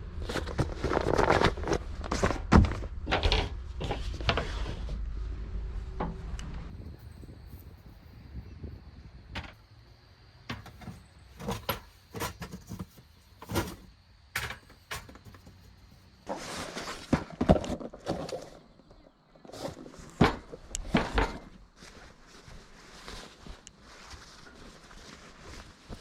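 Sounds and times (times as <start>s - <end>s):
objects clicking and knocking: 10.5s - 15.7s
rustling: 14.6s - 18.7s, 19.4s - 26.0s.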